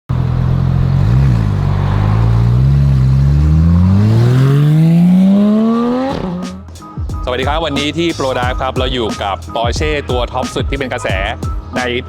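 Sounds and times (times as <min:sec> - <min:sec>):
sports car engine revving: 0:00.1 - 0:06.8.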